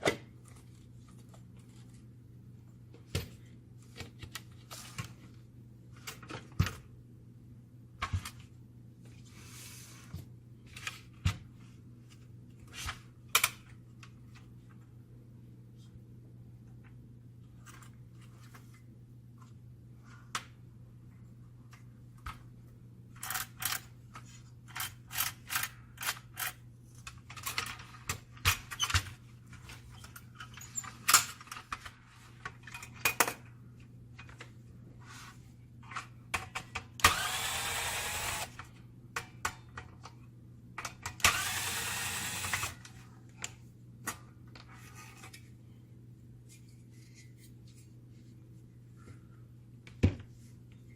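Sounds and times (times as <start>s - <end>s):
handheld power tool whirring: 37.0s - 38.6s, 41.2s - 42.8s.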